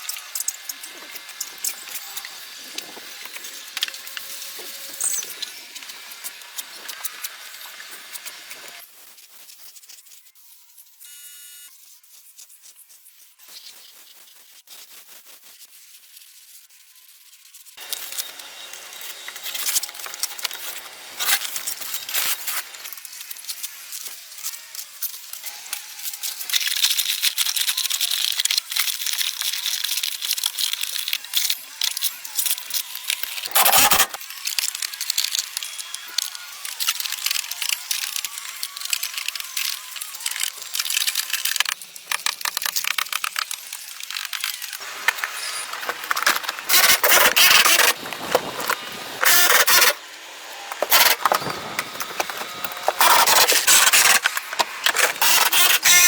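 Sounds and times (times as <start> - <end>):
clicking and scraping of parts: 0.0 - 8.8, 17.8 - 23.3, 26.5 - 56.0.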